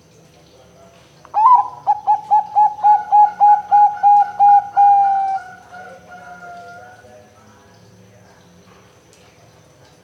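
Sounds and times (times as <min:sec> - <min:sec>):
dove cooing: 0:01.4 - 0:07.0.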